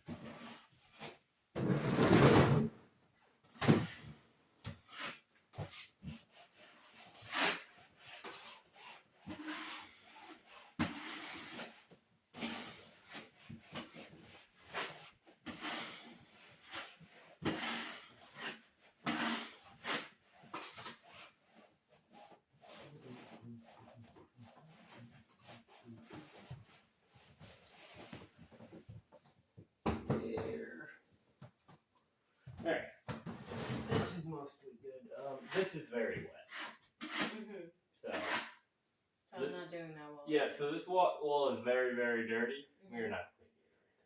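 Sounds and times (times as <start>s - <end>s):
scrubbing and scraping surfaces: 0.0s - 2.8s, 3.6s - 29.3s, 32.5s - 37.4s, 38.0s - 38.6s.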